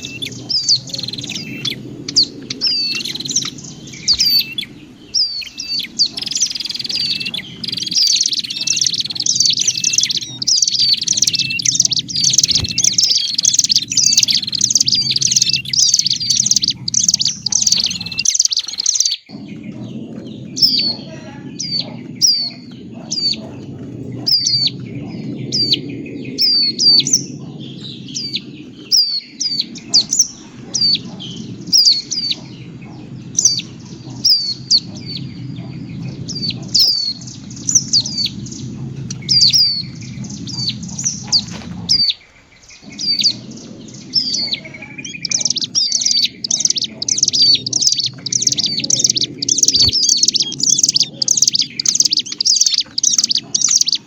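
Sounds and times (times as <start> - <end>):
sharp high bird chirps: 0.0 - 19.3, 44.1 - 54.0
low hum: 19.3 - 53.7.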